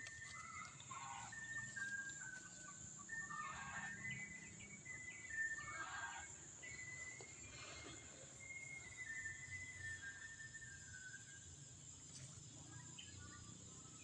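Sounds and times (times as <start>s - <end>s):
bird whistles: 0.0s - 11.9s
high insect drone: 0.0s - 14.0s
short fowl calls: 0.4s - 1.4s, 5.6s - 6.3s.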